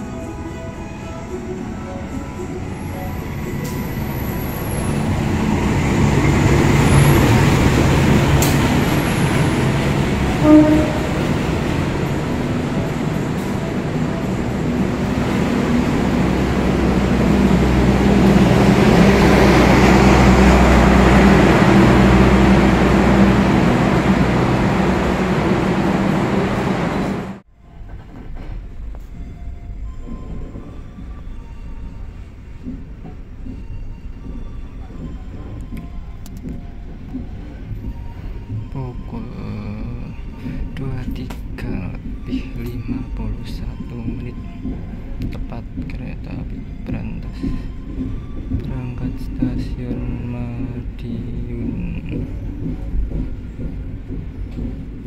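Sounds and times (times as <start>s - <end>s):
train passing on rails: 0.0s - 55.0s
short loud beep: 10.4s - 11.3s.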